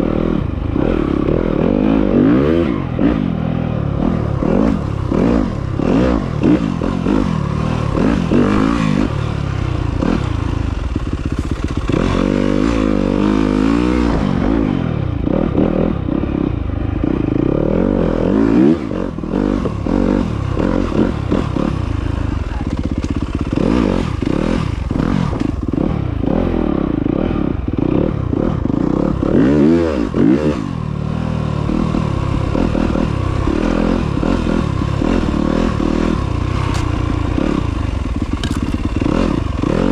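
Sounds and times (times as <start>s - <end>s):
motorcycle engine revving: 0.0s - 39.9s
clattering and scraping: 36.5s - 39.7s.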